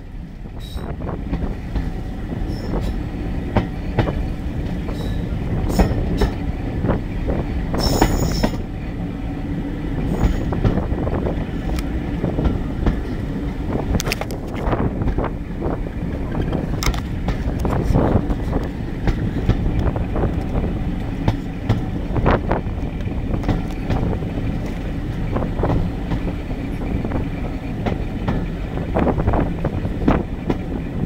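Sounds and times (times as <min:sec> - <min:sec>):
train wheels rumbling on track: 0:00.0 - 0:31.0
high-pitched wheel squeals: 0:02.5 - 0:03.0.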